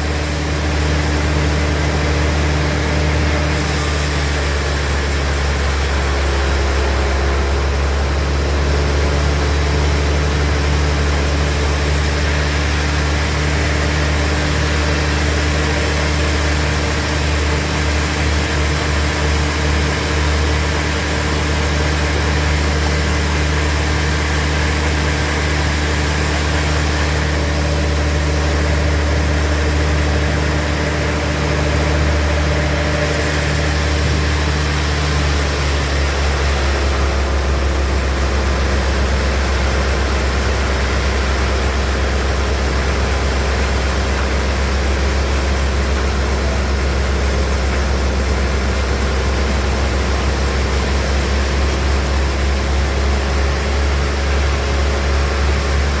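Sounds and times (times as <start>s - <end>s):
band saw droning: 0.0s - 56.0s.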